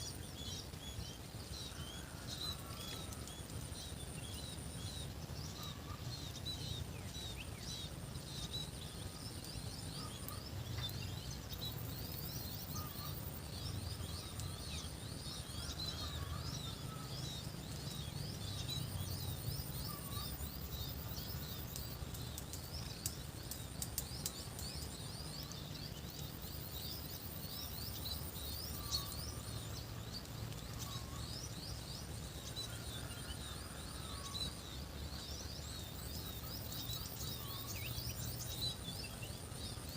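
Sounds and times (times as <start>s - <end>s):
faint clicks: 2.3s - 4.4s, 21.4s - 26.3s.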